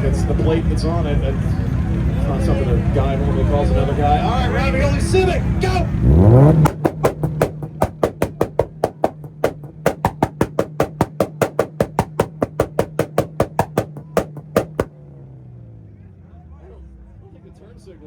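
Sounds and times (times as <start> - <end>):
car engine revving: 5.9 - 9.8
rev limiter popping: 6.1 - 14.9.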